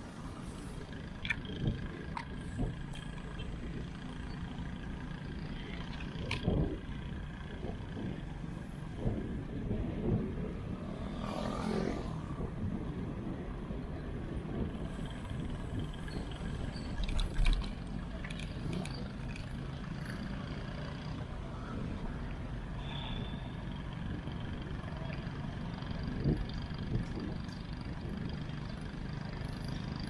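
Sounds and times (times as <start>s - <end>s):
road riding rumble: 0.0s - 30.0s
wind: 0.0s - 30.0s.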